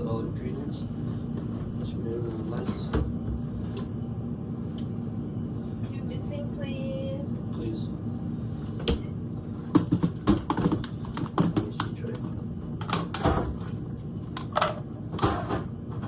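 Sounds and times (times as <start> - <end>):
low steady hum: 0.0 - 16.0
kitchen items clicking and knocking: 9.7 - 13.7.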